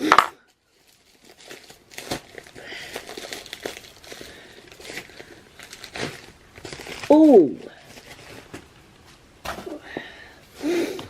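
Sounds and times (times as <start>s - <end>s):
envelope being torn open: 0.1s - 8.5s.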